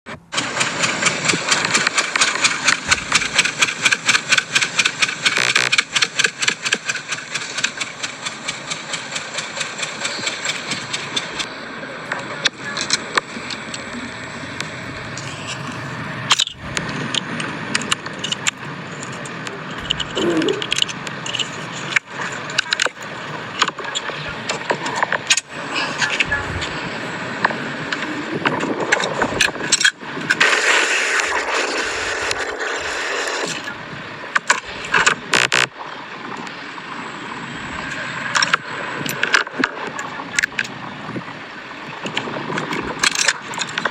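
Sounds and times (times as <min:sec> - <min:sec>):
rapid ticking from exhaust: 0:00.4 - 0:28.4
mechanical scraping: 0:00.4 - 0:29.6
sharp clicks: 0:00.6 - 0:11.5
car engine idling: 0:00.6 - 0:28.5.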